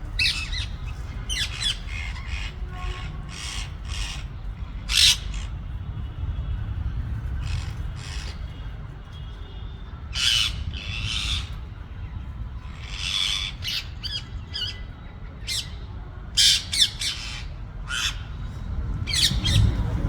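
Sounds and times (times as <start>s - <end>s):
parakeets squawking: 0.1s - 5.6s, 7.4s - 8.5s, 10.2s - 11.7s, 12.6s - 18.5s, 19.1s - 19.8s.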